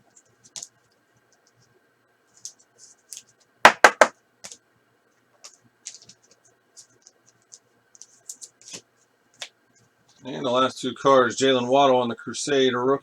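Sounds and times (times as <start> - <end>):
sharp taps: 3.7 - 4.1.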